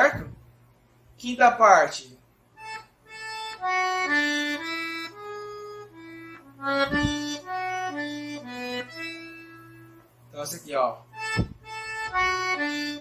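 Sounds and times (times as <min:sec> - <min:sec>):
accordion slow melody: 0:02.5 - 0:10.3, 0:11.1 - 0:13.0
low thump: 0:06.8 - 0:07.3, 0:11.3 - 0:12.5.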